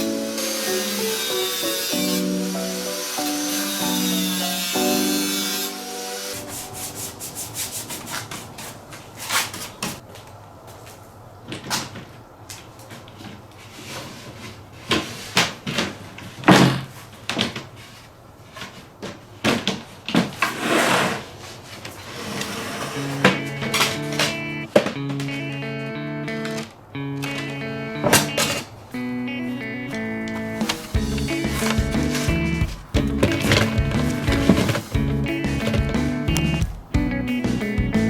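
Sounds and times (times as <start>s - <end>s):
background music: 0.0s - 7.2s, 23.2s - 38.0s
rough scraping strokes: 5.4s - 9.8s, 20.5s - 23.3s.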